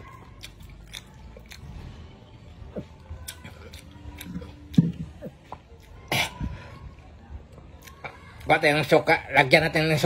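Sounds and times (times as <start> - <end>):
wet mouth clicks and smacks: 0.0 - 1.7
man chewing fruit: 0.0 - 8.8.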